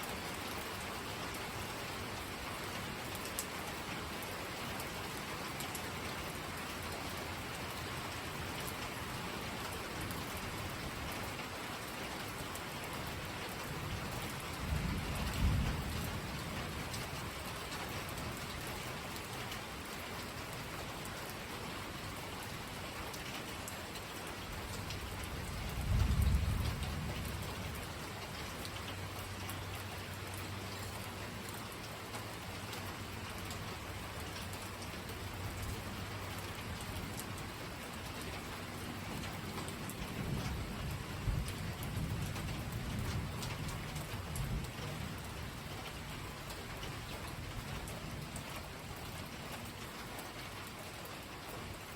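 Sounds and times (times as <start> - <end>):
steady rain falling: 0.0 - 51.9
low rolls of thunder: 14.4 - 17.0, 25.3 - 27.8, 39.2 - 45.4.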